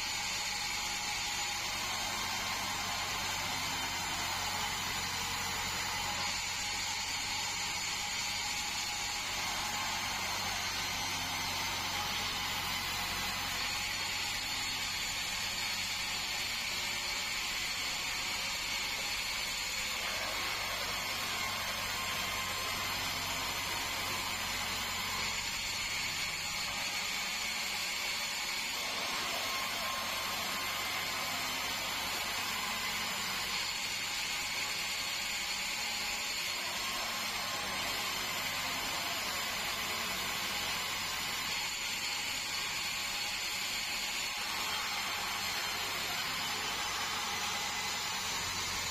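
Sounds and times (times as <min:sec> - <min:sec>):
band saw mechanical hum: 0:00.0 - 0:48.9
high steady whine: 0:00.0 - 0:48.9.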